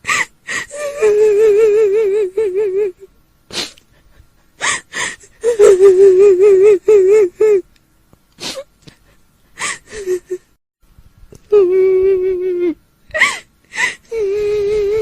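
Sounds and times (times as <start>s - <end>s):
woman wailing and crying: 0.1s - 3.1s, 4.6s - 7.6s, 9.6s - 10.5s
sharp gasping breaths: 3.5s - 5.4s.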